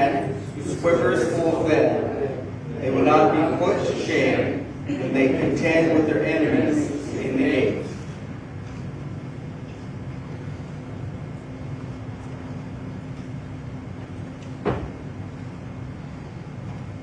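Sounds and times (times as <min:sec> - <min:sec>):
faint constant hum: 0:00.0 - 0:17.0
steady low rumble: 0:00.0 - 0:17.0.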